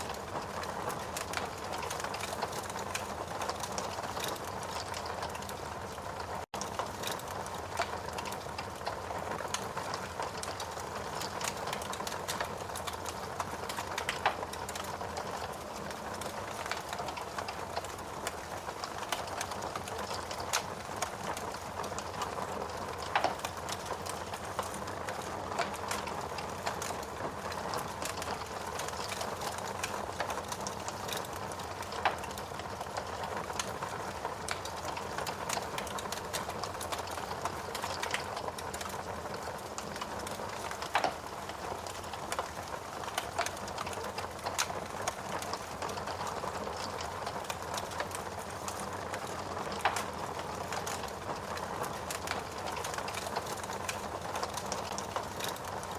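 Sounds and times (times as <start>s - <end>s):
wood fire crackling: 0.0s - 55.9s
fire pops: 39.7s - 55.7s.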